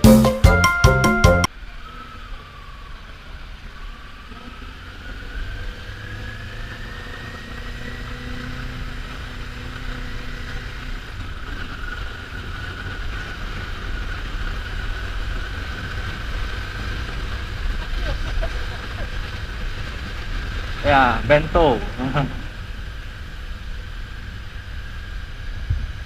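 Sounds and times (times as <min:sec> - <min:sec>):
motorcycle engine running: 0:04.3 - 0:26.0
faint whine: 0:15.9 - 0:26.0.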